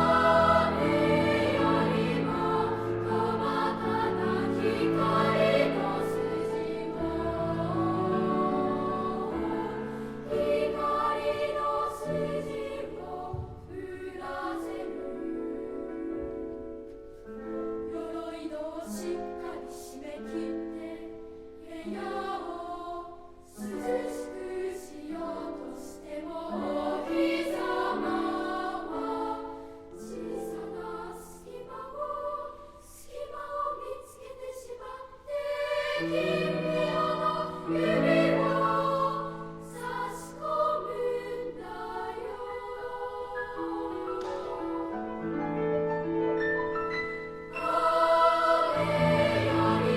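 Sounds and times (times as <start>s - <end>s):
children's choir singing: 0.0s - 16.9s, 17.6s - 45.4s, 46.9s - 49.9s.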